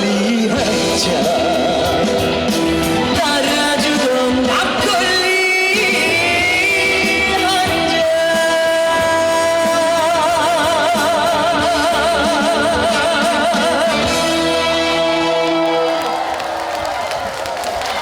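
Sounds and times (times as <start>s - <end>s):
man singing with vibrato: 0.0s - 15.9s
backing music: 0.0s - 17.3s.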